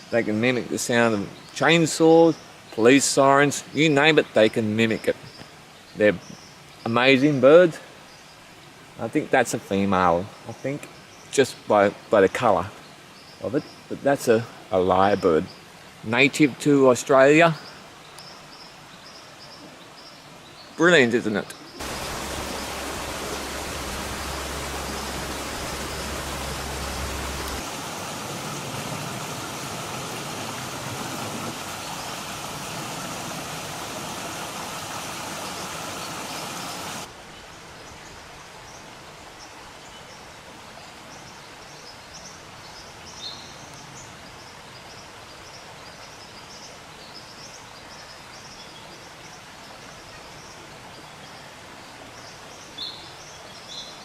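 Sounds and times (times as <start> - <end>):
loud steady rushing noise: 21.8 - 37.1.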